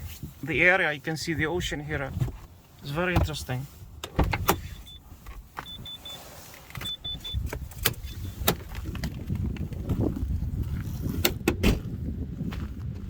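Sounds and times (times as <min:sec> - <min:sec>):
car door clicks and knocks: 0:04.0 - 0:04.7, 0:11.2 - 0:11.9
car warning chime beeping: 0:04.7 - 0:07.5.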